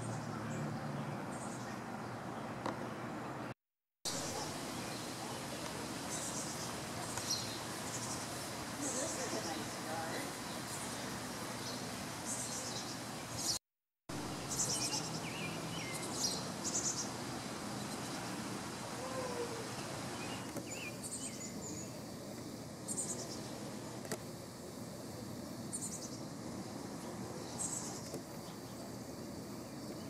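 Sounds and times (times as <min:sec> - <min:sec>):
steady outdoor hiss: 0:00.0 - 0:30.0
small birds chirping: 0:04.1 - 0:13.6, 0:14.2 - 0:18.5, 0:19.2 - 0:23.7, 0:25.6 - 0:26.3, 0:27.0 - 0:30.0.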